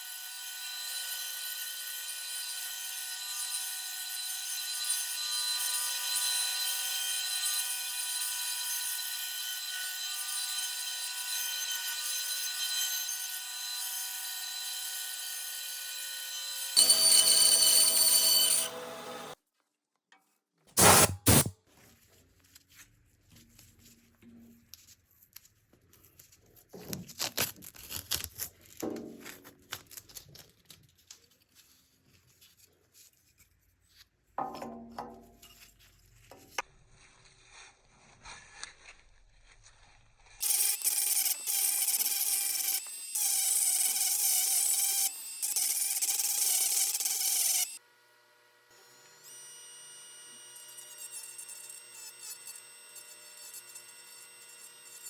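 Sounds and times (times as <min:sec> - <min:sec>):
power tool whining: 0:16.4 - 0:19.4, 0:20.8 - 0:21.5
short loud bursts: 0:20.8 - 0:21.5
tools scraping on wood: 0:20.8 - 0:21.5.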